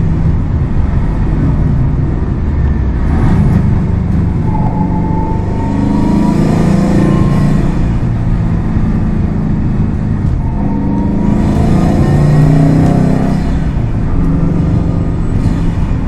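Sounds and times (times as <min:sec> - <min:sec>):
car engine and exhaust accelerating: 0:00.0 - 0:16.0.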